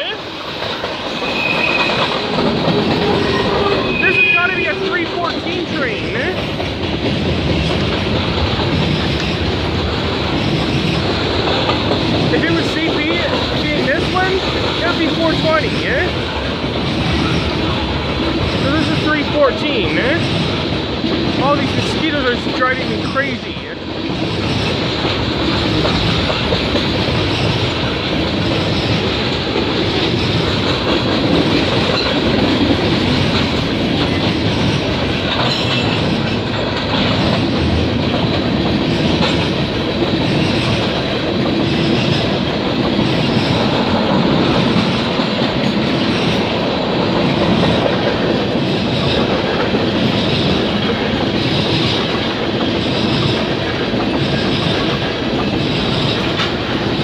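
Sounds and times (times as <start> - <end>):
train wheels clattering on rails: 0.0 - 57.0.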